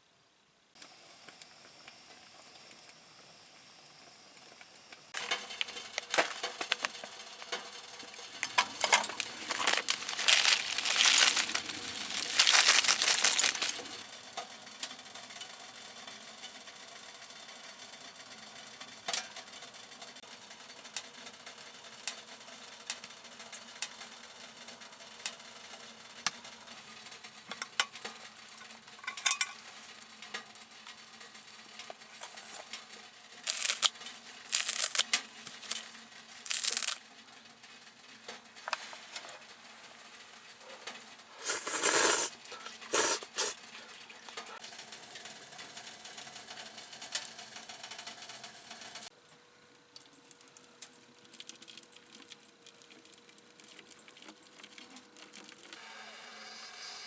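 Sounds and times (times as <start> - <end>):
low sizzle: 0.8 - 57.0
utensil scraping a pan: 41.3 - 43.6.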